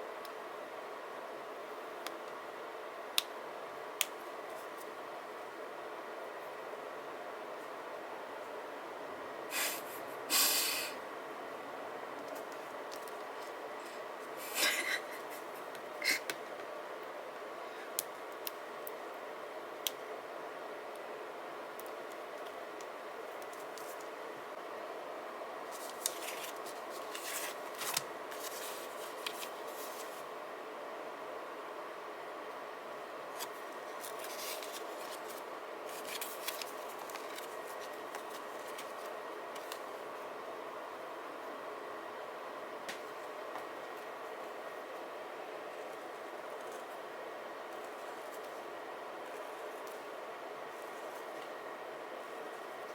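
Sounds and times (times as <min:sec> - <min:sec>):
paper rustling: 0:25.7 - 0:30.3, 0:33.4 - 0:39.9.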